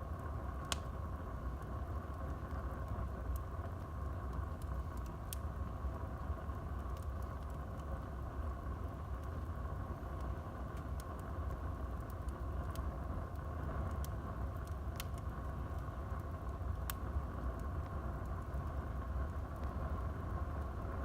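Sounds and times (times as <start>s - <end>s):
burning wood popping and crackling: 0.0s - 21.0s
low rumble of flames: 0.0s - 21.0s.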